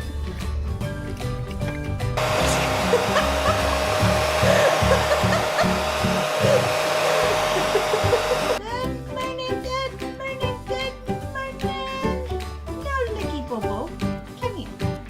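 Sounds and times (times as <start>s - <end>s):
background music beat: 0.0s - 15.0s
electric blower hissing: 2.2s - 8.6s.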